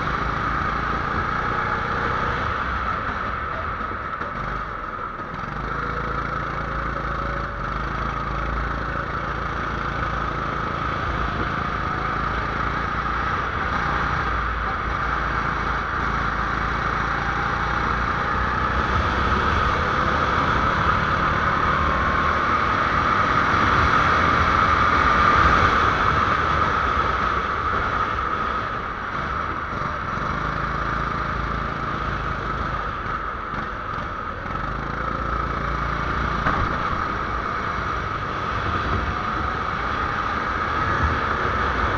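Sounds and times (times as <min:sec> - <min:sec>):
kart engine running: 0:00.0 - 0:41.9.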